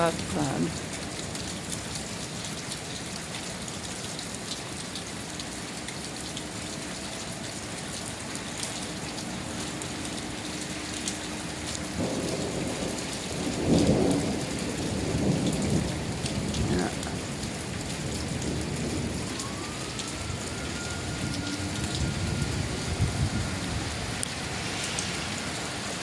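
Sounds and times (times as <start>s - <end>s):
steady rain hissing: 0.0s - 26.0s
low rumble of thunder: 11.9s - 26.0s.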